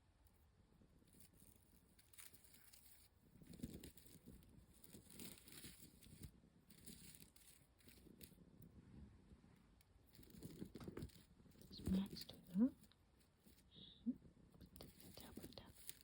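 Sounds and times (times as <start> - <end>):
tinsel crinkling: 1.0 - 8.4, 10.0 - 13.8, 14.6 - 16.0.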